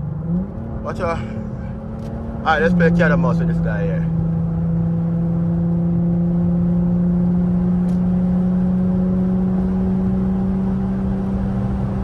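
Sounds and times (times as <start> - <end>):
car engine droning from inside: 0.0 - 12.0.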